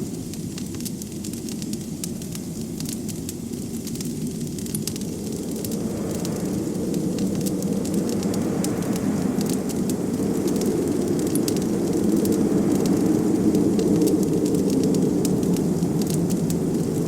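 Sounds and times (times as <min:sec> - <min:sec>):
wood fire crackling: 0:00.0 - 0:17.0
blizzard wind rushing: 0:03.4 - 0:17.0.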